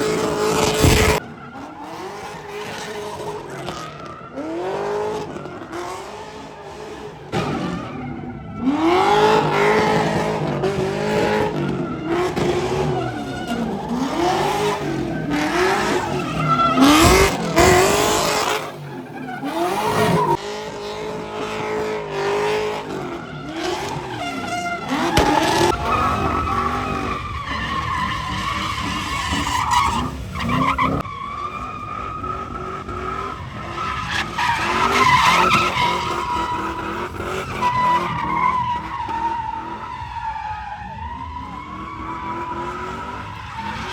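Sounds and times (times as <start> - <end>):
car engine revving: 0.0 - 43.9
tyres squealing: 11.1 - 20.4, 22.6 - 43.9.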